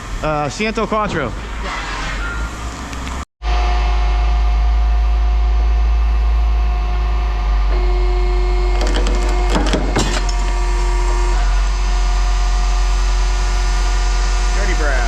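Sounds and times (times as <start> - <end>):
vehicle engine rumbling: 4.3 - 15.0.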